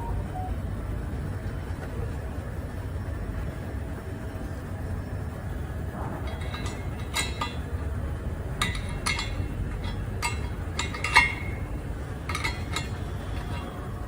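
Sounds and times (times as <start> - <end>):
steady low hum: 0.0 - 14.0
metal tool clinking: 6.3 - 7.7, 8.6 - 13.8.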